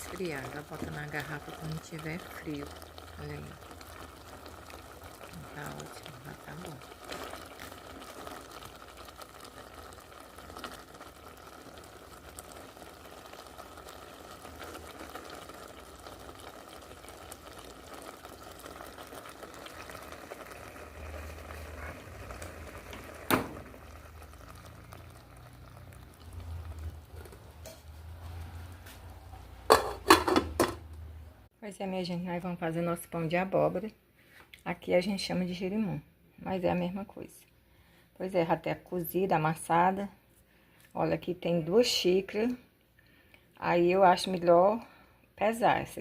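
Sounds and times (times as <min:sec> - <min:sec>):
syrup bubbling in a pot: 0:00.0 - 0:30.6.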